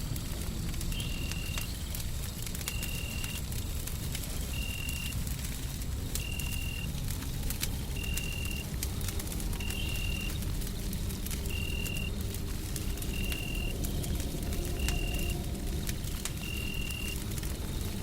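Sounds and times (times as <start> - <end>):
wood fire crackling: 0.0 - 18.0
deep white-noise rumble: 7.2 - 18.0.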